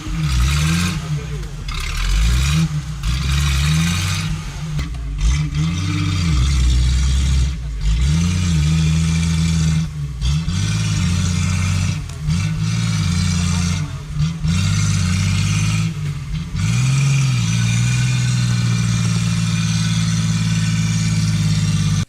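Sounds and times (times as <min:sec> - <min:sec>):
off-road engine revving hard: 0:00.0 - 0:22.0.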